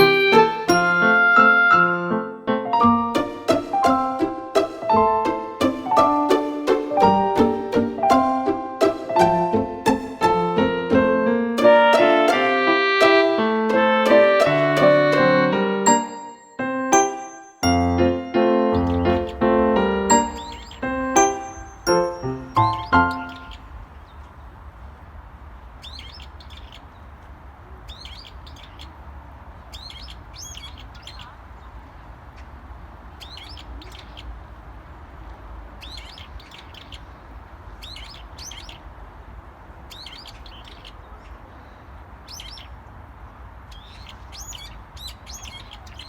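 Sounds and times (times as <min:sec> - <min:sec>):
small songbird chirping: 0:00.0 - 0:01.7, 0:15.9 - 0:25.0, 0:25.6 - 0:32.1, 0:33.1 - 0:34.4, 0:35.7 - 0:39.0, 0:39.7 - 0:46.0.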